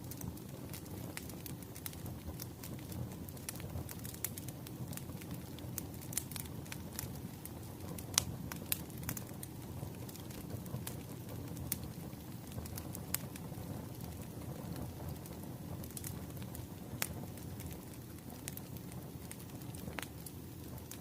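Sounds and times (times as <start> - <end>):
fire pops and snaps: 0.0 - 21.0
wood fire crackling: 0.0 - 21.0.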